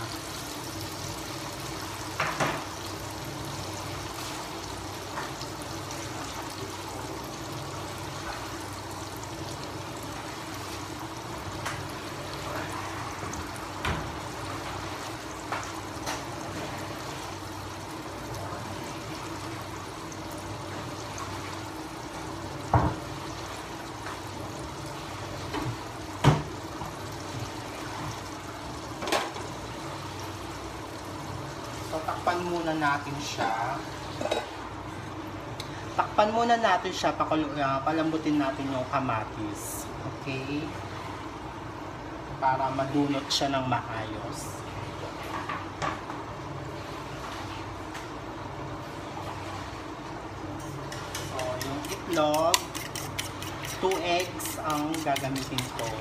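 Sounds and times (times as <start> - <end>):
vegetables sizzling in a pan: 0.0 - 34.9.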